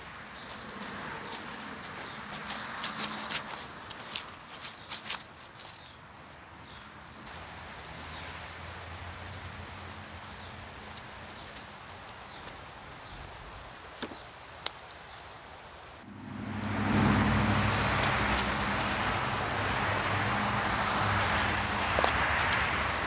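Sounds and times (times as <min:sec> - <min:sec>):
loud engine running: 0:16.0 - 0:23.0.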